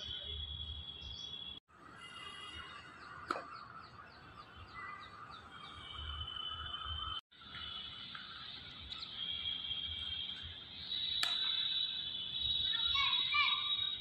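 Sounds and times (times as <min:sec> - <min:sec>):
birds chirping falling calls: 0:02.5 - 0:13.9
sharp click: 0:11.2 - 0:11.4.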